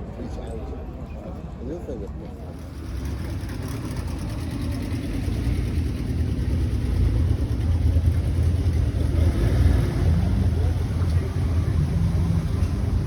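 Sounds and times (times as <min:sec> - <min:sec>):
car engine rumbling: 0:02.5 - 0:13.0.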